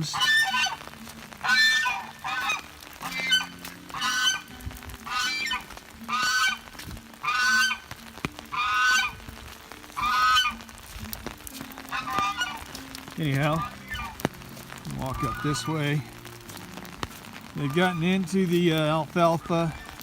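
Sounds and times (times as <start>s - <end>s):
goose honking: 0.0s - 20.0s.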